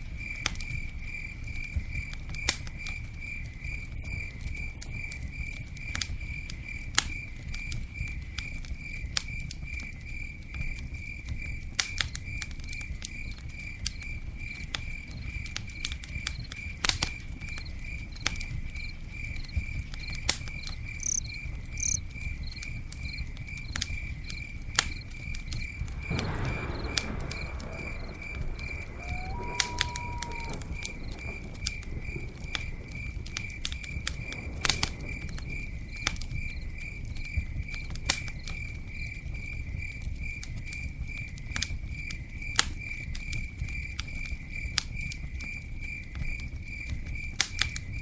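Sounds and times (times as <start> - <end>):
campfire crackling and popping: 0.0 - 48.0
cricket chirping: 0.0 - 48.0.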